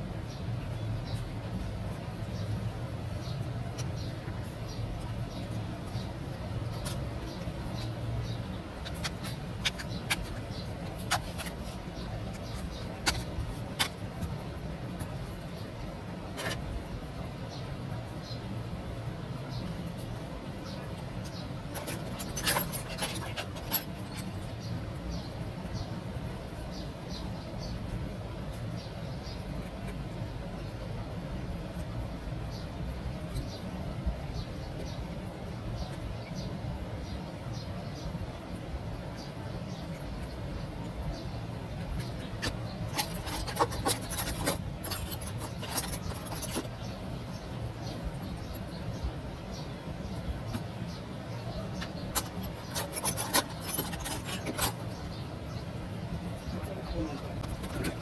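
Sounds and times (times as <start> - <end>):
small clicks and scrapes: 0.3 - 17.6, 19.5 - 30.8, 39.2 - 58.0
hand tool scraping and clicking: 8.8 - 11.6, 42.4 - 46.8, 51.8 - 55.2.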